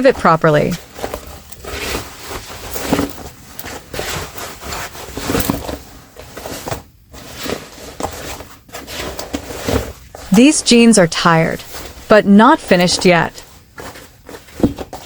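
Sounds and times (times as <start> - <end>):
fabric rustling and rubbing: 0.6 - 10.4, 11.6 - 12.1, 12.7 - 15.0.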